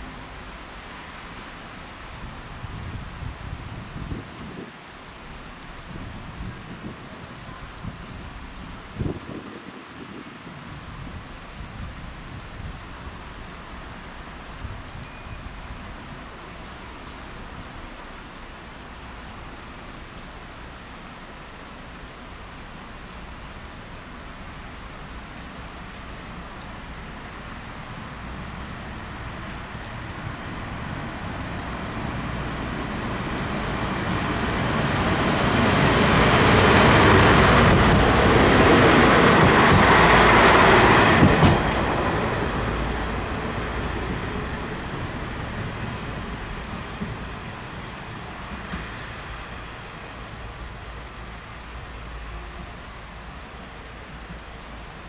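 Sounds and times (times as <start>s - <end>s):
train wheels rushing on rails: 30.6s - 50.5s.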